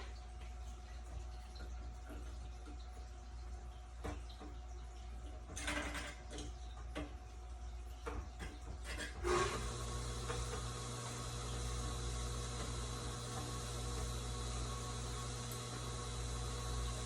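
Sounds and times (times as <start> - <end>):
machine hum with hiss: 9.2 - 17.0.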